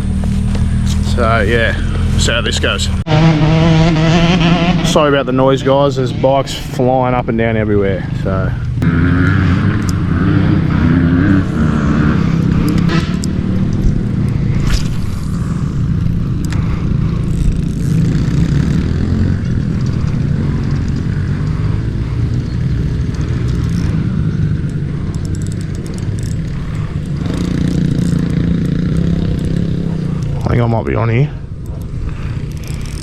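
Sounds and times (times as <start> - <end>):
dirt bike engines running: 0.0 - 33.0.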